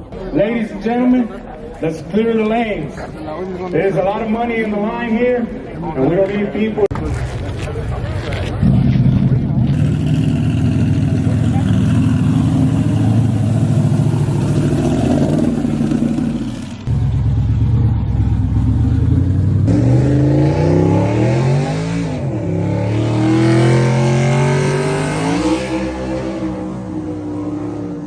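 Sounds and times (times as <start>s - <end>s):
truck engines revving: 6.9s - 28.0s.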